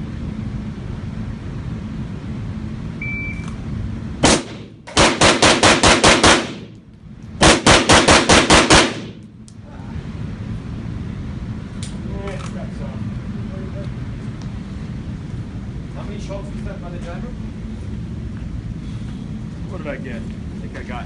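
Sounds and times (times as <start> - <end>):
pistol shots: 4.2 - 6.8, 7.4 - 9.2.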